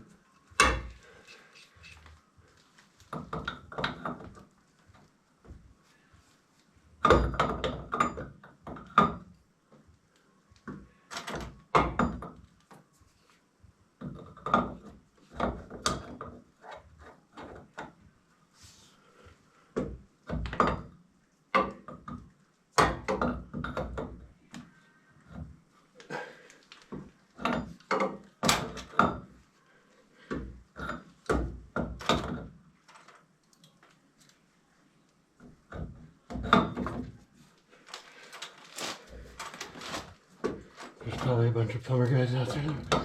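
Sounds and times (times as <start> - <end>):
tools knocking and rattling: 3.1 - 4.5, 7.0 - 9.3, 10.7 - 12.5, 14.0 - 18.0, 26.9 - 29.4, 30.2 - 33.2, 35.4 - 37.2.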